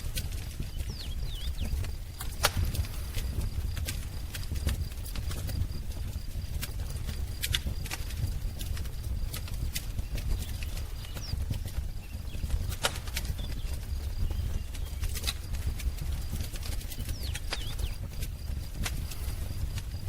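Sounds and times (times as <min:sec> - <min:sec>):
wood fire crackling: 0:00.0 - 0:20.0
bird chirps: 0:00.6 - 0:01.9, 0:10.0 - 0:15.3, 0:16.3 - 0:18.0.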